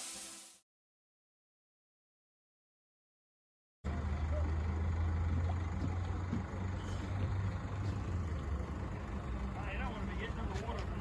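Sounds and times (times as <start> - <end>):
engine humming steadily: 3.9 - 11.0.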